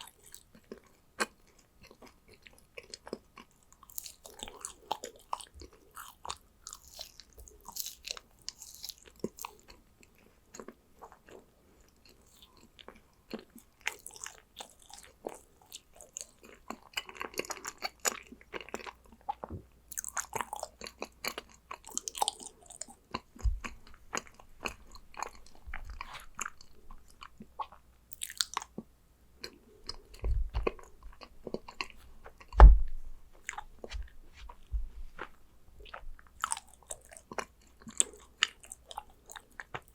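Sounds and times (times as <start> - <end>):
cookies crunching while chewed: 0.0 - 32.6, 34.5 - 39.9
dull low thumps: 23.4 - 23.8, 30.1 - 31.3, 32.2 - 36.2.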